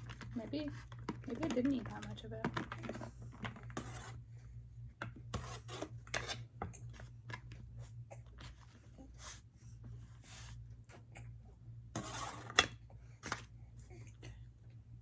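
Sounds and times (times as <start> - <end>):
plastic containers and utensils handled: 0.0 - 4.2, 12.0 - 13.5
steady low hum: 0.0 - 15.0.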